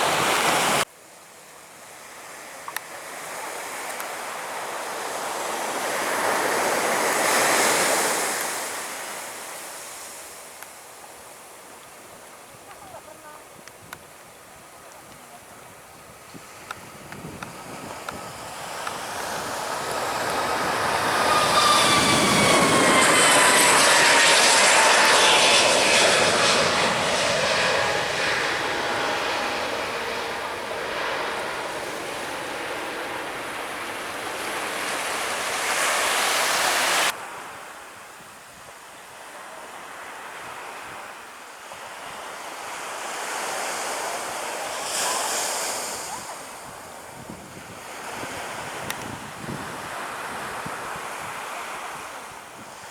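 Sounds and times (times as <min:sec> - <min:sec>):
wind: 0:00.0 - 0:52.9
jet aircraft passing overhead: 0:16.4 - 0:37.1
surf: 0:17.6 - 0:37.1.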